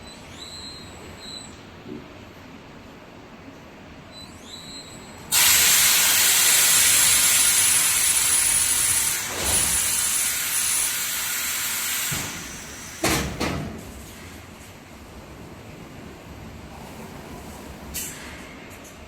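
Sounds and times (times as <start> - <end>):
compressed air hissing: 5.3 - 13.2
short sharp burst of air: 5.3 - 13.4.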